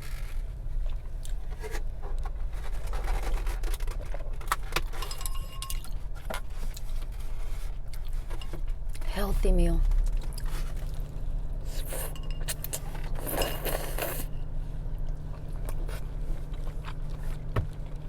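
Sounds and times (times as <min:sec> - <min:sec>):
steady low hum: 0:00.0 - 0:18.0
dishes and utensils clinking: 0:04.9 - 0:06.0, 0:11.9 - 0:14.3.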